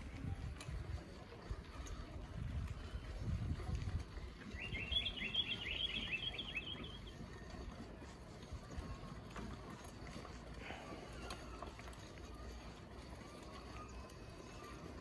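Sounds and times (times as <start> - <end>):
bird chirping quickly: 4.5 - 7.2.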